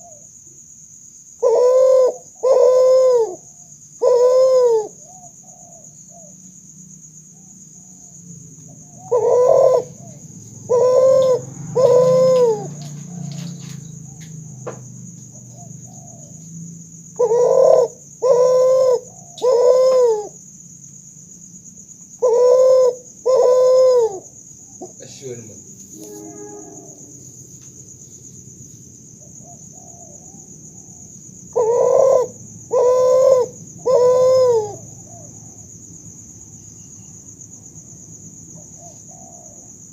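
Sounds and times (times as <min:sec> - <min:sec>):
dove cooing: 0:01.4 - 0:06.4, 0:07.4 - 0:16.4, 0:17.1 - 0:20.4, 0:22.1 - 0:25.2, 0:29.2 - 0:35.6, 0:38.6 - 0:39.8.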